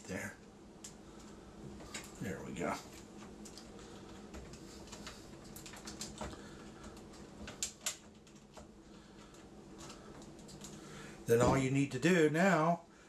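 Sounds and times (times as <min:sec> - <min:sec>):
wires and plastic rustling: 0:00.0 - 0:12.6
sharp plastic clicks: 0:04.5 - 0:08.7.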